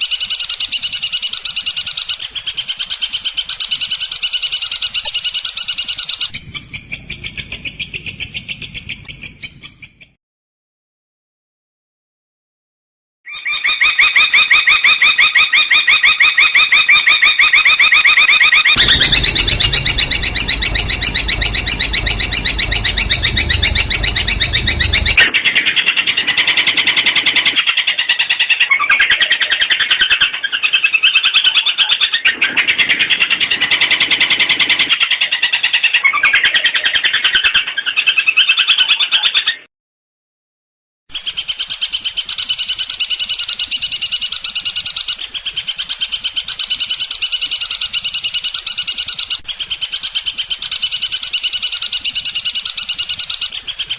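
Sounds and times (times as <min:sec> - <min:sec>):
bird singing rapid trills: 0:18.6 - 0:25.2
harsh low rumble: 0:18.8 - 0:25.3.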